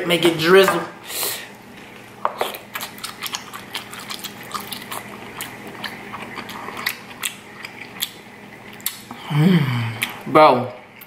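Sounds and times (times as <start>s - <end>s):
person chewing wetly: 2.3s - 9.2s, 9.9s - 10.3s.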